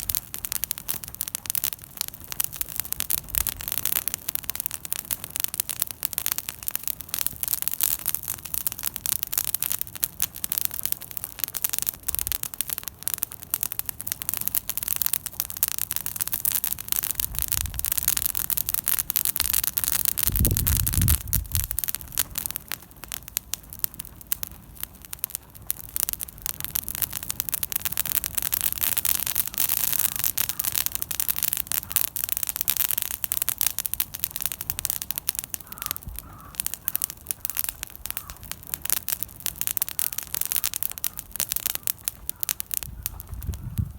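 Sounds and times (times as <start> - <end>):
campfire crackling and popping: 0.0 - 43.9.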